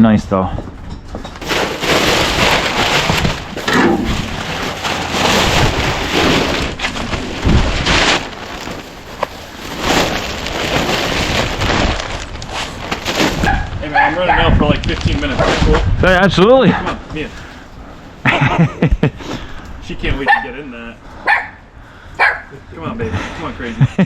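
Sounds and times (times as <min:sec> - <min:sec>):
wind buffeting microphone: 0:13.4 - 0:17.9.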